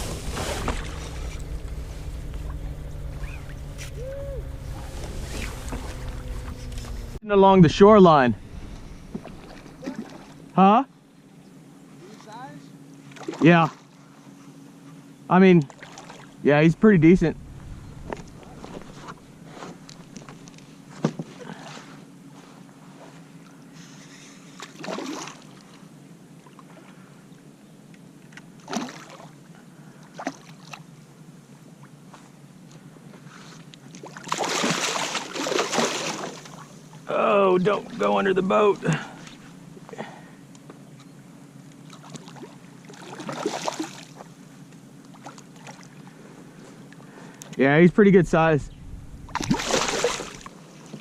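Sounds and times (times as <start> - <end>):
water splashing: 0.0 - 7.2, 7.8 - 10.5, 28.6 - 29.4, 33.9 - 39.6, 41.8 - 44.3, 49.0 - 51.0
steady low hum: 0.0 - 51.0.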